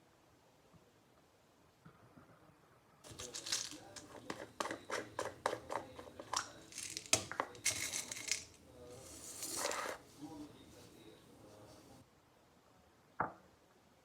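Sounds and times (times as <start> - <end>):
crinkling rustles: 3.0 - 4.8, 5.7 - 10.1.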